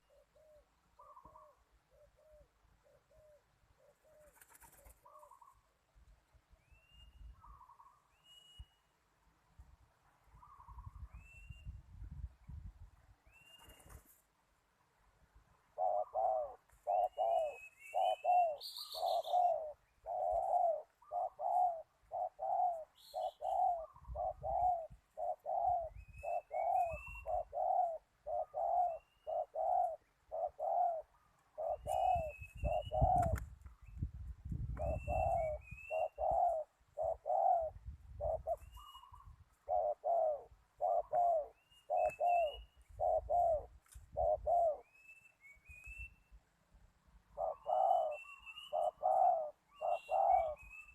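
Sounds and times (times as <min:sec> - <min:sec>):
doves cooing: 0:00.0 - 0:05.7, 0:15.7 - 0:33.4, 0:34.8 - 0:44.9, 0:47.2 - 0:50.9
small birds chirping: 0:00.0 - 0:05.8, 0:06.6 - 0:08.9, 0:10.2 - 0:11.8, 0:15.8 - 0:46.4, 0:47.2 - 0:50.9.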